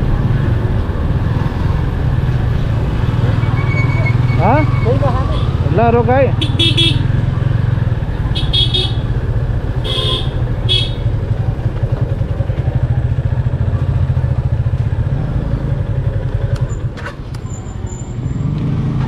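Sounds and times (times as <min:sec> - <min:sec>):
motorcycle engine idling: 0:05.4 - 0:17.0.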